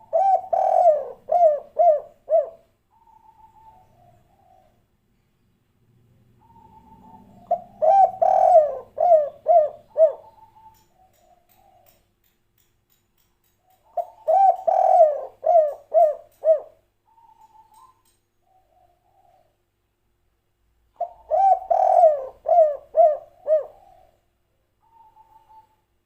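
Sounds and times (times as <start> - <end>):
dove cooing: 0.0 - 4.9, 6.4 - 12.0, 13.8 - 19.6, 21.0 - 24.2, 24.8 - 25.8.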